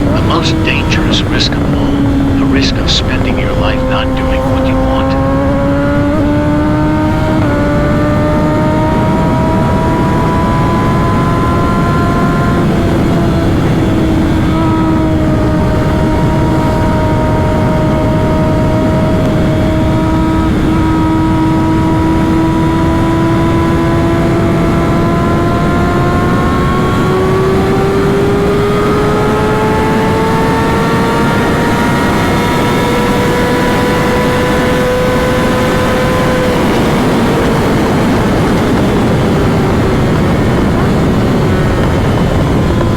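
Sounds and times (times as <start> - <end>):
motorcycle engine at high revs: 0.0 - 42.9
wind rushing over microphone: 31.1 - 42.9.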